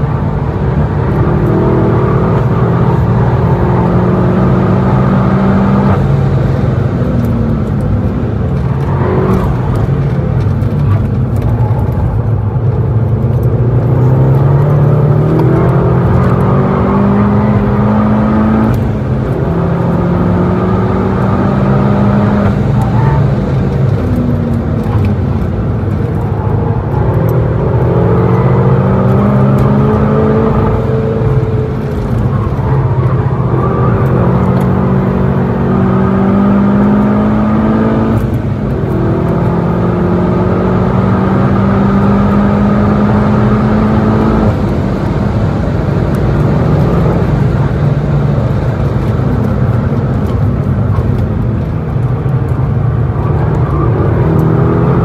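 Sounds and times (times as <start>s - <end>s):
car engine accelerating: 0.0s - 55.0s
tyre and road noise: 0.0s - 55.0s.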